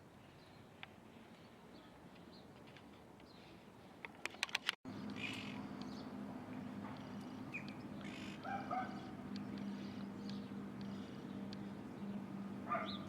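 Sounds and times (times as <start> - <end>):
birds calling: 4.4 - 13.0
steady low hum: 4.9 - 13.0.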